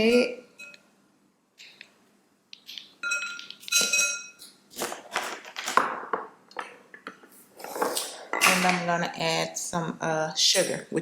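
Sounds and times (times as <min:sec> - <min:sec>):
spoon clinking against bowl: 0:03.0 - 0:04.6.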